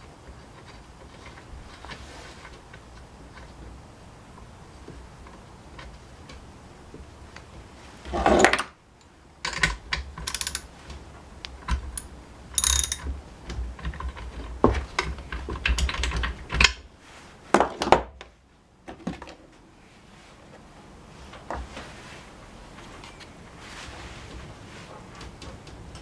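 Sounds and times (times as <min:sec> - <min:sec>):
tools and small parts rattling: 0:09.4 - 0:10.8, 0:11.6 - 0:16.8.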